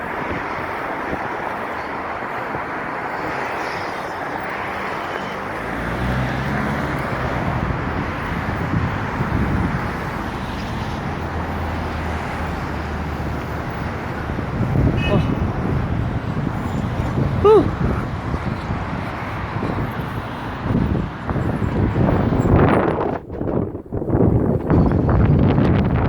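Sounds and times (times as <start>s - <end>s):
road noise of moving vehicle: 0.0s - 26.0s
low engine hum: 5.4s - 23.2s.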